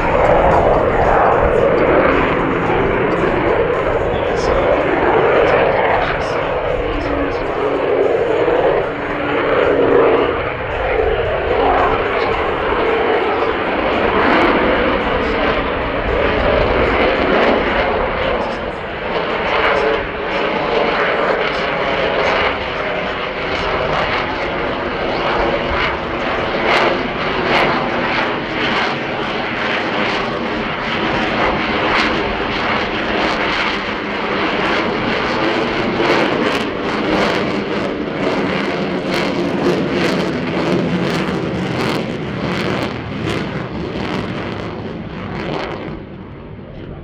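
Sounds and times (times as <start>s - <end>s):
jet engine roaring: 0.0s - 47.0s.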